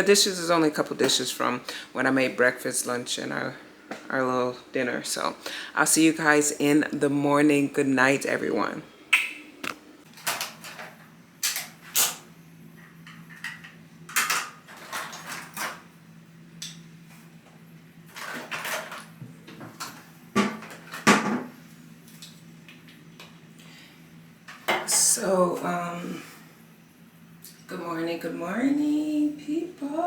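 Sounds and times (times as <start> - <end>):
steady low hum: 15.5 - 30.0.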